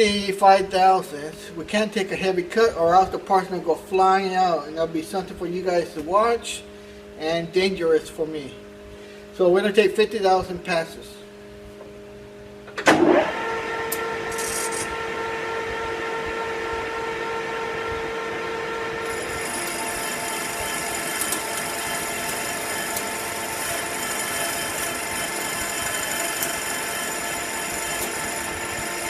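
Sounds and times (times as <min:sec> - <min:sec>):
metal lathe whining: 0:13.6 - 0:29.0
cutting tool ringing: 0:19.0 - 0:29.0.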